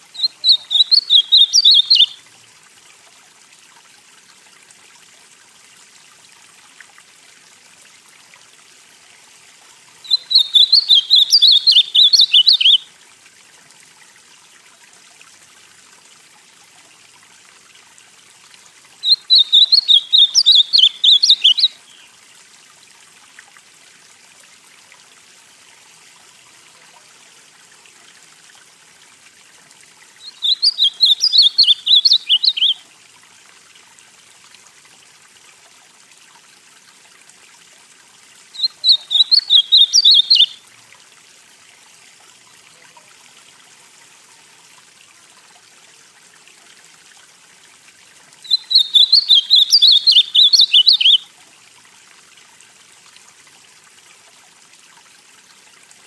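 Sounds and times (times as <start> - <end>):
faint steady hiss: 0.0 - 56.0
bird singing warbled phrases: 0.1 - 2.2, 10.0 - 12.9, 19.0 - 22.1, 30.2 - 32.8, 38.6 - 40.6, 48.4 - 51.2.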